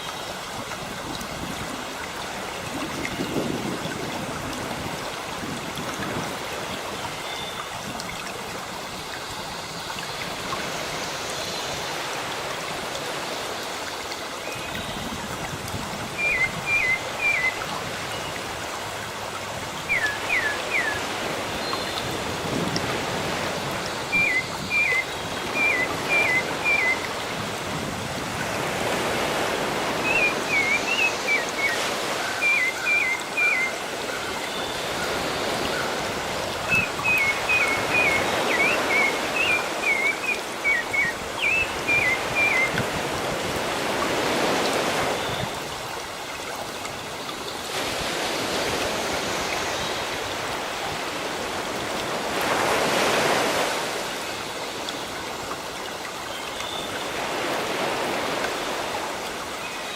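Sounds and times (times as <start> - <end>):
ocean waves washing: 10.2 - 56.3, 56.9 - 59.9.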